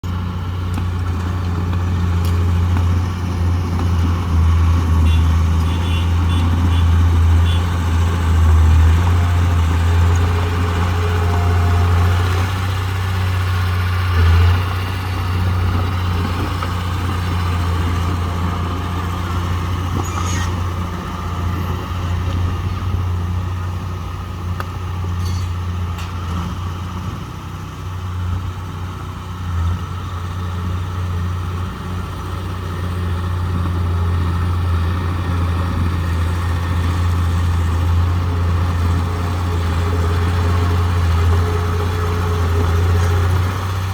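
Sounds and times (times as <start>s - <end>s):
diesel engine running: 0.0s - 43.9s
short metallic knocks: 25.2s - 26.2s.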